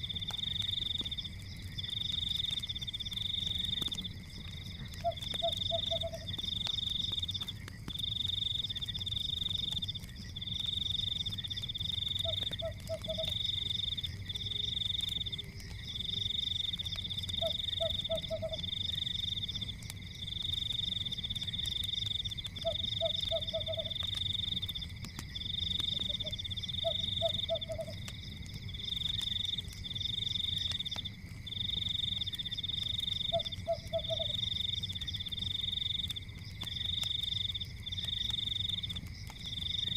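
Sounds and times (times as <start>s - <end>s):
frogs trilling: 0.0s - 39.9s
frog croaking: 4.8s - 6.4s, 12.2s - 13.4s, 17.3s - 18.8s, 22.5s - 24.1s, 25.8s - 28.1s, 33.2s - 34.4s.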